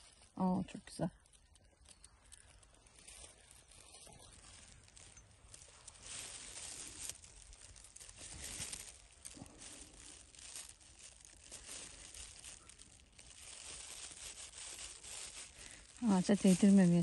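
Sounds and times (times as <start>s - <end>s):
crackling and rustling of handling: 0.0s - 17.0s.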